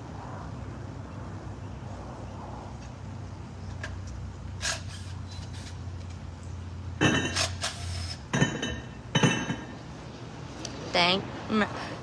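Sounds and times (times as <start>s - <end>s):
steady low hum: 0.0s - 12.0s
glass or dishes clinking: 8.4s - 9.7s.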